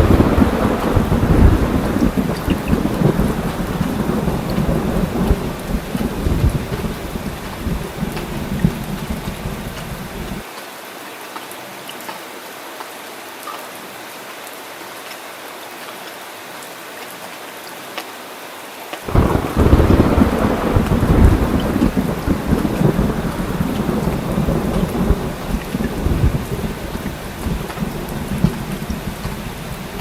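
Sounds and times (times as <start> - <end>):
thunder rumbling: 0.0 - 10.4, 19.1 - 30.0
heavy rain falling: 0.0 - 30.0.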